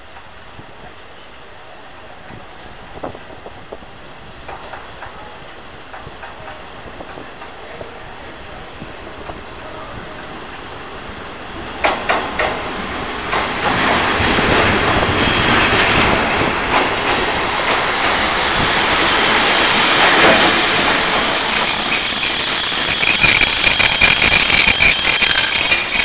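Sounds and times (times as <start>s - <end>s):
train rumbling along platform: 0.0s - 26.0s
high-pitched wheel and brake squeal: 20.7s - 26.0s.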